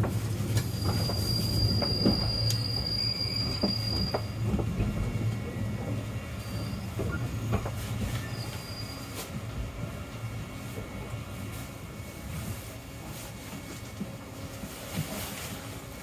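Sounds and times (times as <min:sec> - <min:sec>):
clacks over rail joints: 0:00.0 - 0:06.0, 0:06.9 - 0:08.3
train low rumble: 0:00.0 - 0:16.0
high wheel squeal: 0:00.6 - 0:04.4, 0:06.4 - 0:09.3.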